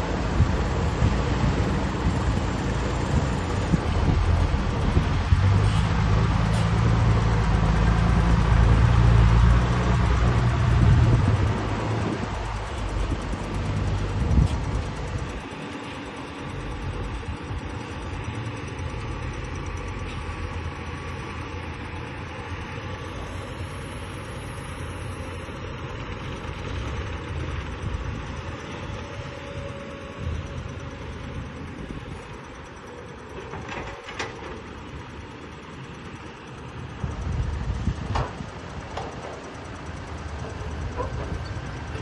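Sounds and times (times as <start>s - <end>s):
excavator diesel engine running: 0.0s - 42.0s.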